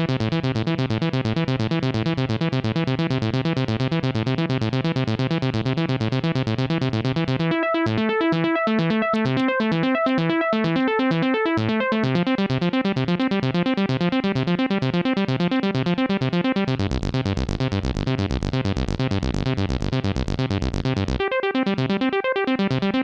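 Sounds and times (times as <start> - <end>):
synthesizer bass pattern: 0.0 - 23.0
synthesizer arpeggios: 7.3 - 23.0.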